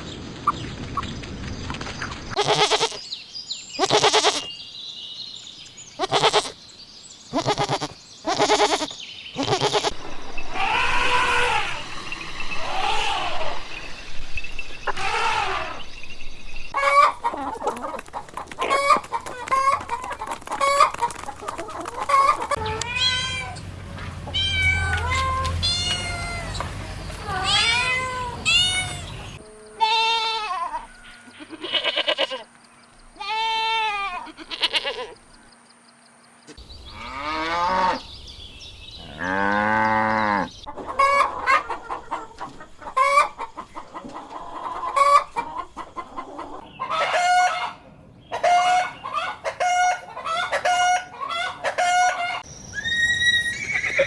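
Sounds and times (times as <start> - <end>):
quick chattering animal calls: 2.4 - 3.0, 3.8 - 4.5, 6.0 - 6.6, 7.3 - 11.9
rising and falling hoots and cries: 7.3 - 16.0, 46.8 - 54.0.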